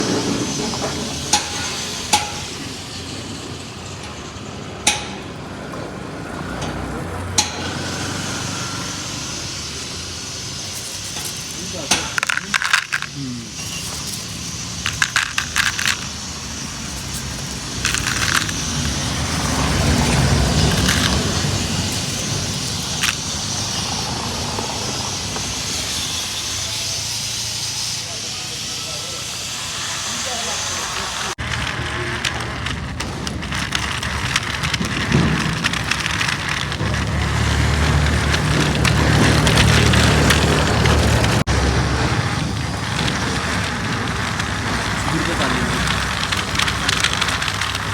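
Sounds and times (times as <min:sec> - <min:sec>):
gravel crunching and rattling: 0:00.0 - 0:27.4, 0:31.1 - 0:47.9
small electric motor running: 0:06.3 - 0:47.9
gritty crackle: 0:07.4 - 0:27.4, 0:30.9 - 0:47.9.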